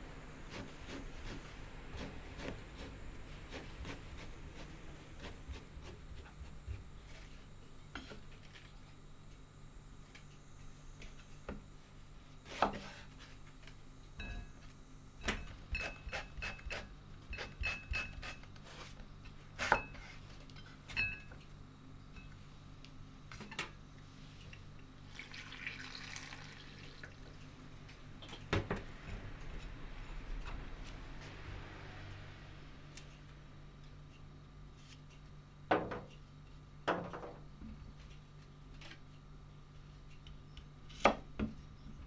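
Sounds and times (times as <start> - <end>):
brief rushing noise: 28.8 - 32.9.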